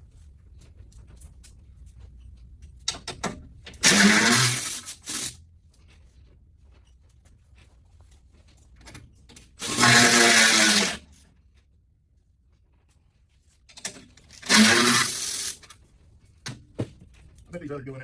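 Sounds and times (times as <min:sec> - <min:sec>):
clicks of parts and tools: 0:02.2 - 0:05.9, 0:08.8 - 0:11.3, 0:13.6 - 0:17.5
power tool driving bolts: 0:02.9 - 0:05.4, 0:09.6 - 0:11.1, 0:13.8 - 0:15.7.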